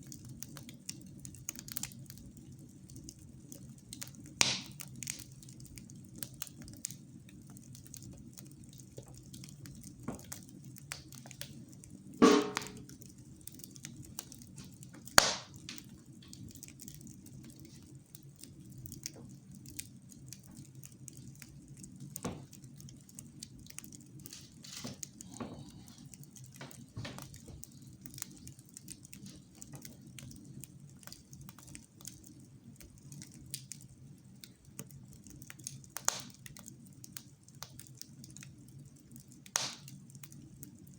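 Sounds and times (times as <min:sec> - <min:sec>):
wood fire crackling: 0:00.0 - 0:40.9
loud sharp pops: 0:04.4 - 0:04.8, 0:12.2 - 0:12.8, 0:15.1 - 0:15.8, 0:36.1 - 0:36.4, 0:39.6 - 0:39.9.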